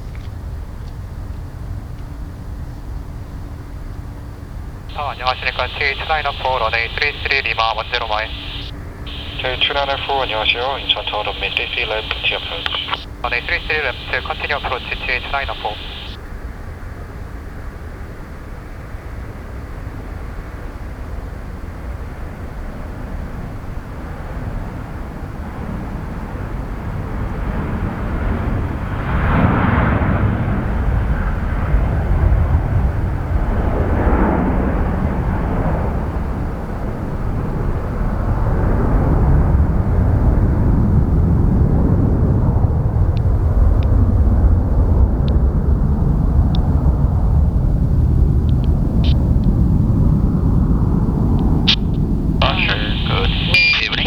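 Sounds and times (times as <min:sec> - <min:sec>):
jet engines rumbling: 0:04.7 - 0:16.2, 0:28.3 - 0:54.0
faint ticks: 0:12.0 - 0:16.2.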